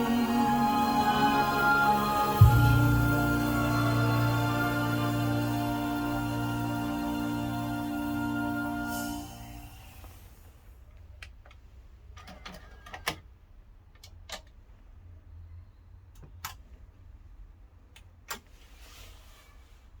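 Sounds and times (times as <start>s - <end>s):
music: 0.0s - 10.2s
low steady hum: 0.0s - 10.4s.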